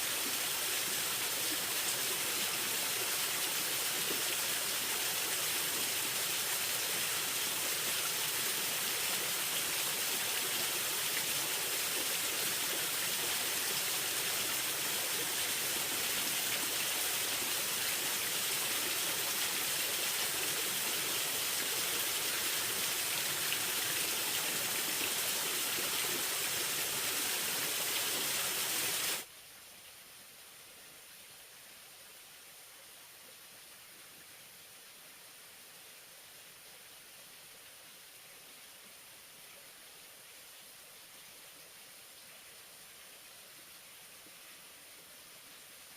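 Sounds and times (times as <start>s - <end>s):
faint hiss: 0.0s - 45.9s
water hissing: 1.6s - 29.2s.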